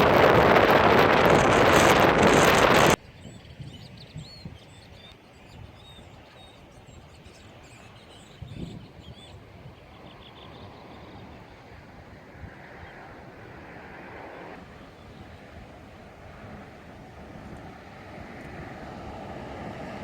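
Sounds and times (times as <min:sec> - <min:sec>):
small birds chirping: 0:03.0 - 0:11.9.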